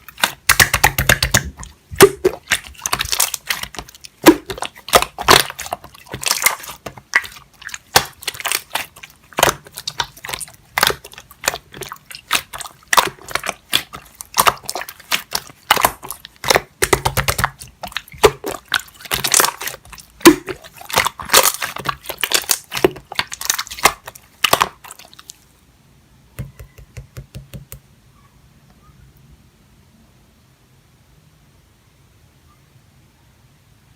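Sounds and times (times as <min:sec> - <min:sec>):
slime squished by hand: 0:00.0 - 0:25.5.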